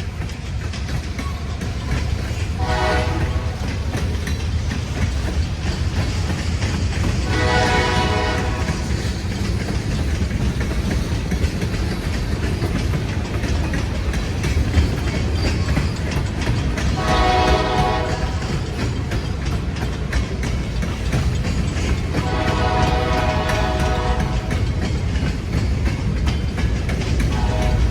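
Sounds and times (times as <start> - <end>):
freight train rumbling: 0.0 - 27.9
locomotive horn blasts: 2.6 - 3.7, 7.3 - 8.9, 16.9 - 18.5, 22.2 - 24.6, 27.3 - 27.9.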